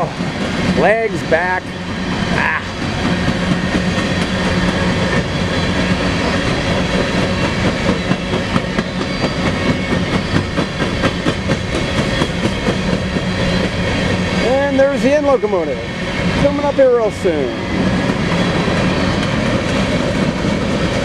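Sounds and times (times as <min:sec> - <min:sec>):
steel wheels clicking over rail joints: 0:00.0 - 0:15.5
train cars rumbling past: 0:00.0 - 0:21.0.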